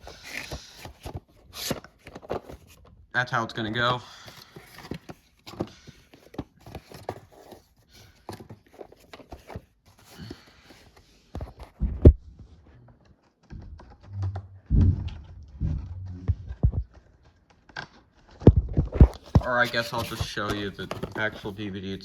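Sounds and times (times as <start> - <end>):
dvd case clicks and rustles: 0.0 - 3.0, 3.7 - 11.8, 17.0 - 22.0
heavier thumps: 13.6 - 16.9.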